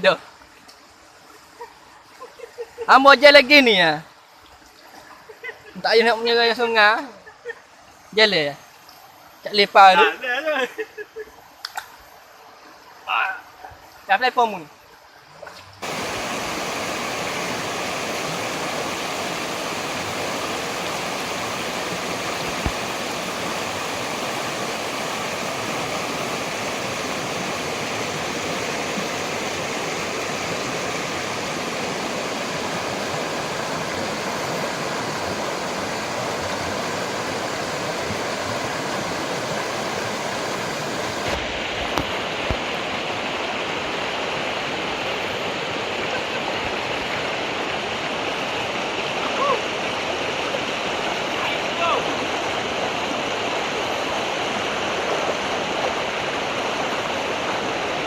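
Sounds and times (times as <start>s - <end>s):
waterfall rushing: 15.8s - 58.0s.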